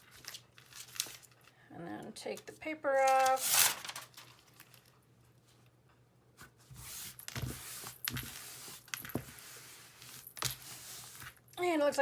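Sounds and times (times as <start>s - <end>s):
paper rustling: 0.0s - 1.5s, 3.0s - 5.0s.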